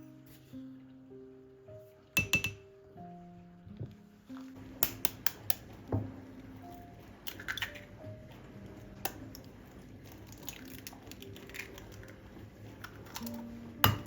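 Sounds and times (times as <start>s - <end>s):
quiet background music: 0.0s - 14.0s
kitchen clicks and taps: 2.2s - 2.6s, 4.8s - 6.0s, 12.8s - 14.0s.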